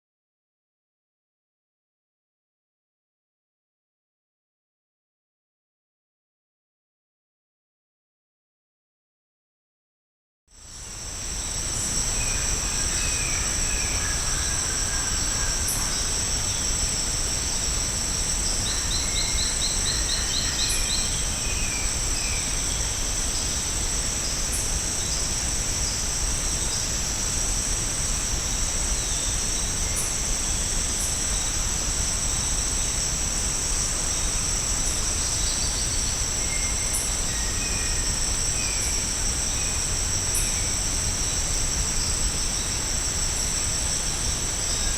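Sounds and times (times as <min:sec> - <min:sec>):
insects droning: 0:10.6 - 0:44.9.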